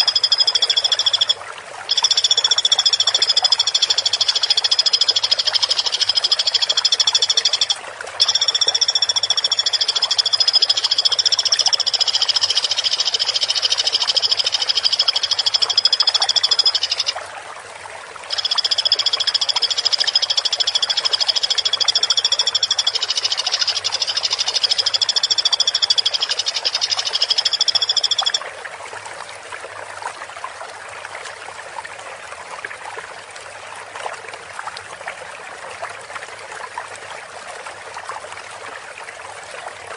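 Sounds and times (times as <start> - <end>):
woodpecker high-pitched trilling call: 0.0 - 17.1
trickling water: 0.0 - 39.9.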